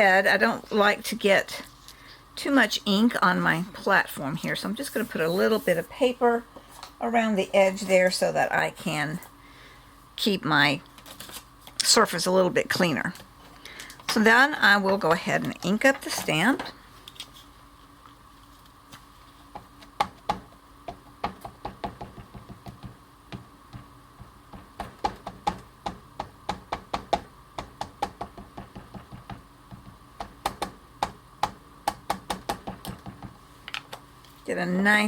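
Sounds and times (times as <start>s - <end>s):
ink pad tapping on stamp: 19.5s - 33.4s.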